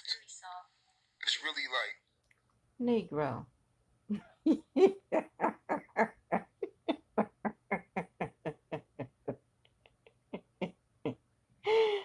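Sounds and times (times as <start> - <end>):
person laughing hard: 4.1 - 12.0.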